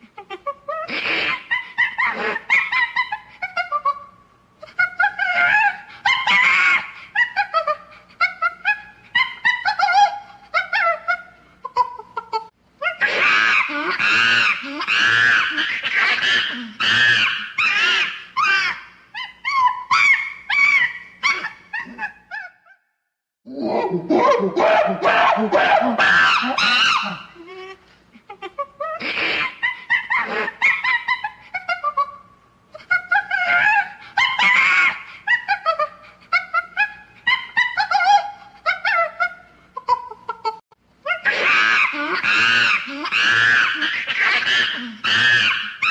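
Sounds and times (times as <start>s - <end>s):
monkey-like whoops and screeches: 4.8s - 7.8s, 12.8s - 22.8s, 23.7s - 27.8s, 28.8s - 32.1s, 32.8s - 40.1s, 41.1s - 45.9s.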